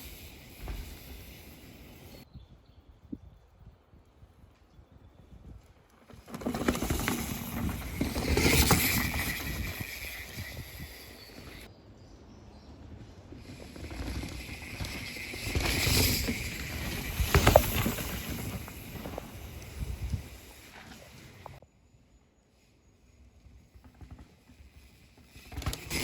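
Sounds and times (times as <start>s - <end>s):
bike tyres rumbling and skidding on dirt: 0.0s - 2.2s, 5.1s - 11.7s, 12.4s - 21.6s, 23.3s - 26.0s
bikes rattling: 0.0s - 2.2s, 5.7s - 11.7s, 12.4s - 21.6s, 23.5s - 26.0s.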